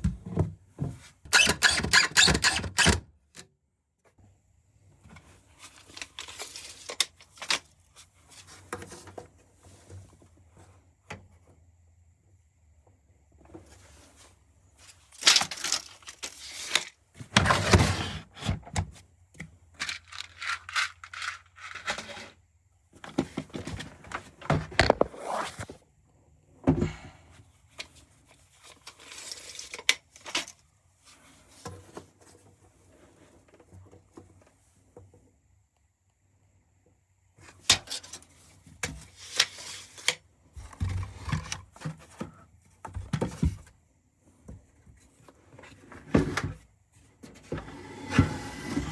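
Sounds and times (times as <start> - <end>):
objects clattering and scraping: 14.9 - 18.8, 19.8 - 22.4, 23.0 - 25.8, 47.2 - 48.9.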